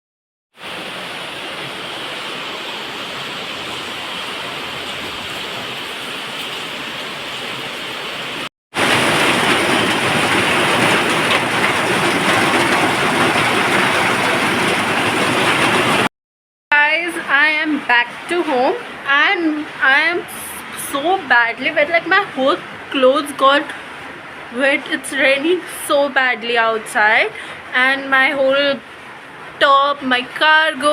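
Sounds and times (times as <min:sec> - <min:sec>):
heavy rain falling: 0:00.6 - 0:16.1.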